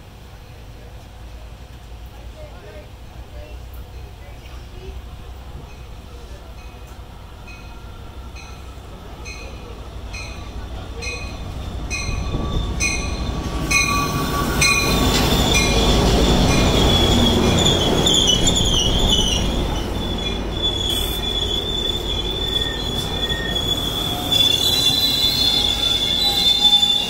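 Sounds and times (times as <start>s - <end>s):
locomotive bell ringing: 5.6s - 27.0s
brake squeal: 11.3s - 27.0s.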